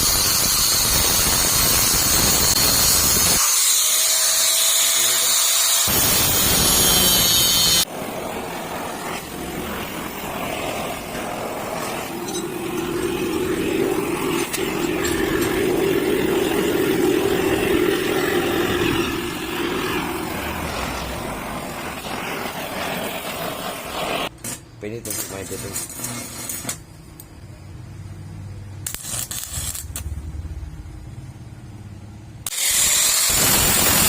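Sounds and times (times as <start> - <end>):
bright hiss: 5.9 - 27.4, 28.7 - 30.8, 32.5 - 34.0.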